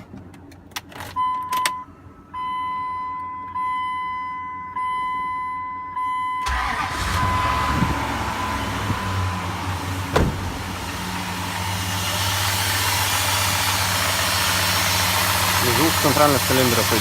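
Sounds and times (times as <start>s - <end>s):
car engine cranking and running: 6.4s - 17.0s.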